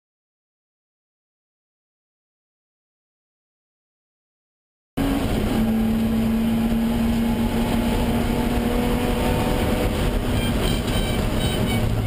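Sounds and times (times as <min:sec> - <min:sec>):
racing car engine at high revs: 0:05.0 - 0:12.0
road and wind noise: 0:05.0 - 0:12.0.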